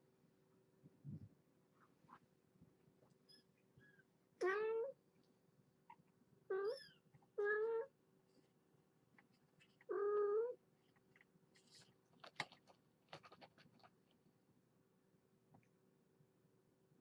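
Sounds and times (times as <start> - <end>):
cat meowing: 6.5 - 7.9, 9.9 - 10.6
light clicks and rustles: 10.8 - 14.2.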